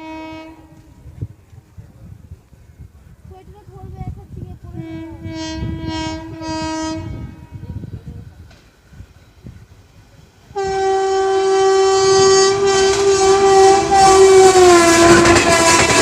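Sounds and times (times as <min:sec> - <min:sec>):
train horn blast: 0:00.0 - 0:01.1, 0:04.7 - 0:07.8, 0:10.5 - 0:16.0
train on track: 0:00.0 - 0:16.0.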